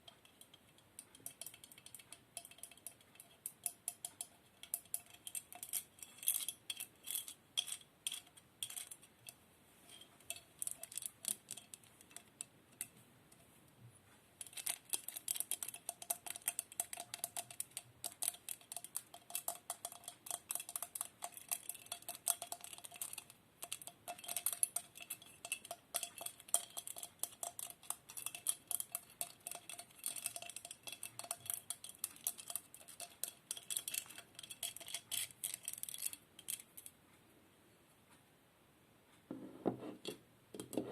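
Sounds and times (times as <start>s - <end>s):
small clicks and taps on hard objects: 0.0s - 9.4s, 14.4s - 36.9s.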